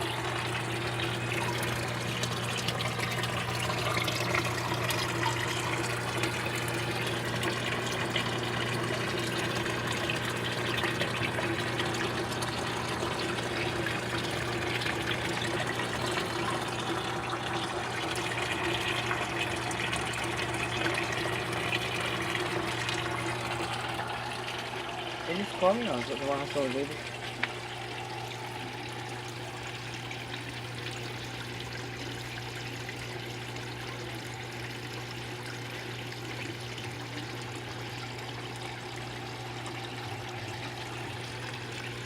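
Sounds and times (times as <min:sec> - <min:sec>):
low steady hum: 0:00.0 - 0:35.6
water splashing into fish tank: 0:00.0 - 0:42.0.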